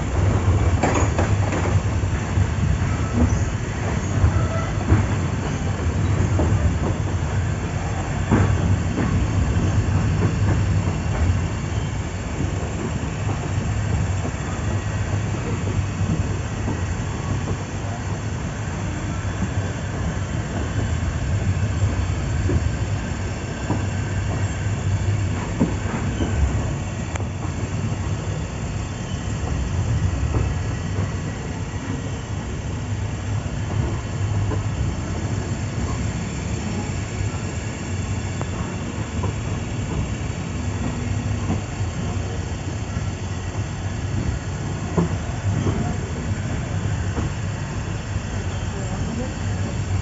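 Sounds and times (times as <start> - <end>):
wheels clacking over rail joints: 0.0 - 11.8
train carriage rumble: 0.0 - 50.0.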